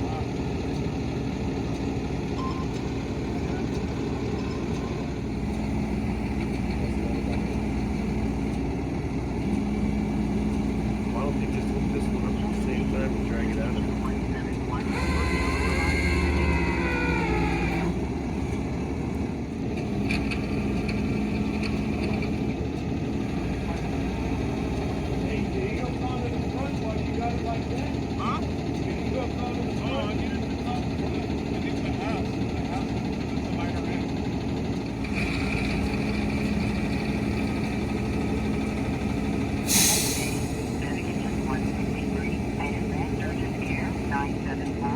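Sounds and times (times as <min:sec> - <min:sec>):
vehicle engine and road noise: 0:00.0 - 0:44.9
high-pitched tone: 0:02.4 - 0:05.4.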